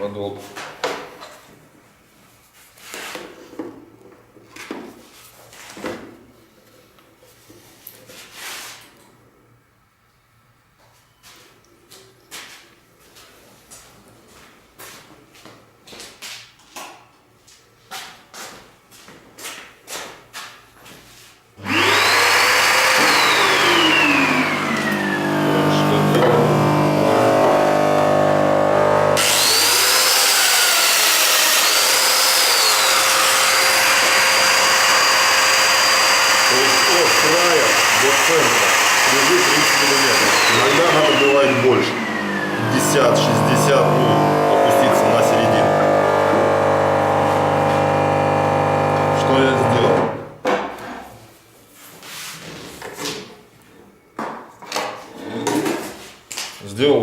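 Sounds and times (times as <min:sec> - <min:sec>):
power tool motor running: 0:21.6 - 0:50.3.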